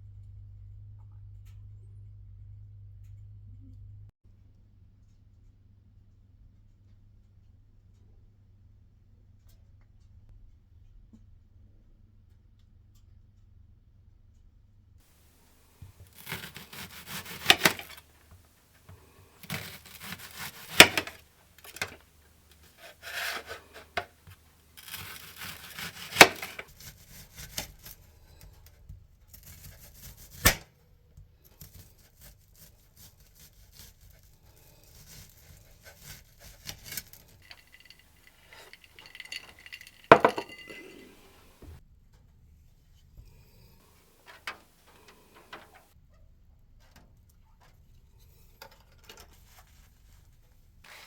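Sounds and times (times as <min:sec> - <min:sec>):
tearing and rubbing with cracks: 0:16.0 - 0:18.2, 0:19.4 - 0:28.0
light ringing clinks: 0:37.4 - 0:41.6.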